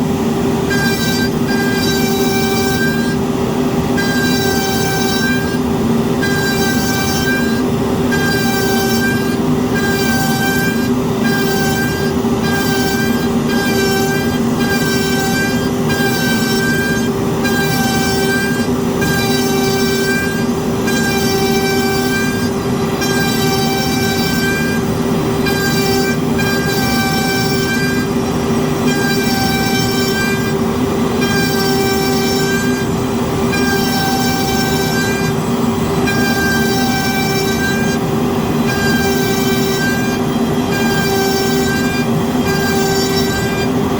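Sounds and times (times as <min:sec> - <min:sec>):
cnc router cutting: 0:00.0 - 0:43.9
industrial dust extractor drone: 0:00.0 - 0:43.9.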